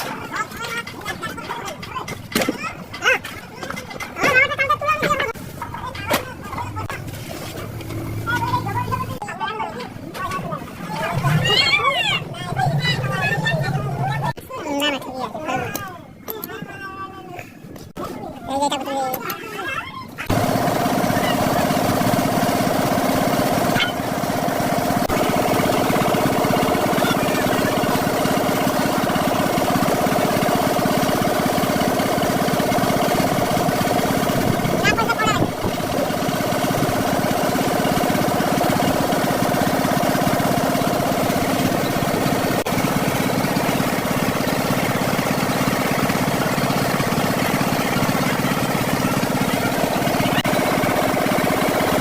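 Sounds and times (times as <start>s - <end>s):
engine idling: 20.2s - 52.0s.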